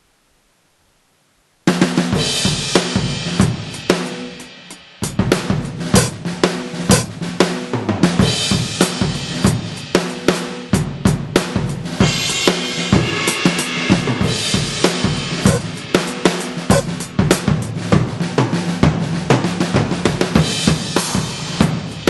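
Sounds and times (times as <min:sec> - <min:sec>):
drum beat: 0:01.7 - 0:22.0
cymbal crash: 0:02.2 - 0:07.4, 0:12.0 - 0:18.3.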